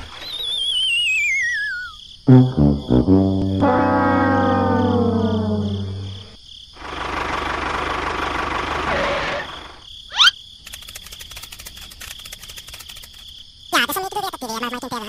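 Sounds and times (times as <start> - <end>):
cricket chirping: 0.2 - 7.0, 8.9 - 15.0
brass-like tone sliding down: 2.3 - 6.3
engine-like rumble: 2.3 - 9.8.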